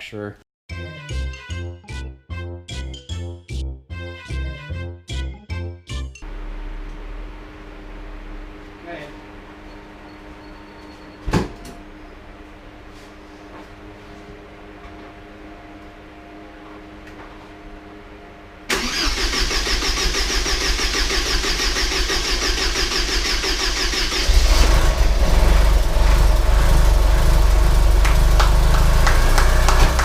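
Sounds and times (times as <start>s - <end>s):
car engine running: 6.2s - 10.1s, 18.7s - 30.0s
starter cranking engine: 18.7s - 29.1s.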